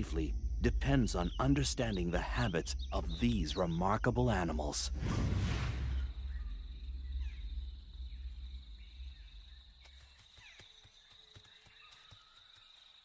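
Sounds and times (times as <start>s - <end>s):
low rumble: 0.0s - 9.9s
cricket trilling: 0.0s - 13.0s
insect chirps: 0.0s - 13.0s.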